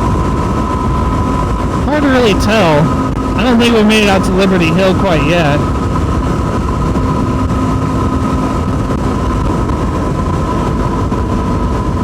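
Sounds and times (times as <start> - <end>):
steady whine: 1.9 - 5.8
wind rush on microphone: 5.7 - 12.0.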